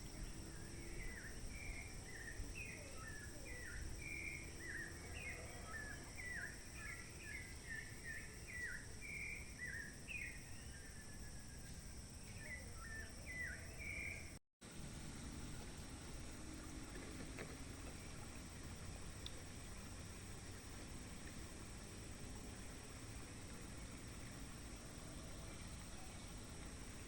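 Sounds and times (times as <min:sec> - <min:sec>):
birds chirping: 0:00.0 - 0:14.4.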